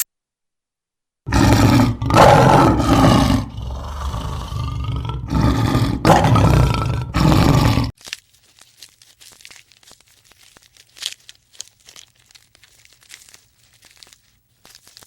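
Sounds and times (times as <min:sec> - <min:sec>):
faint crackling and rustling: 0:07.9 - 0:15.0.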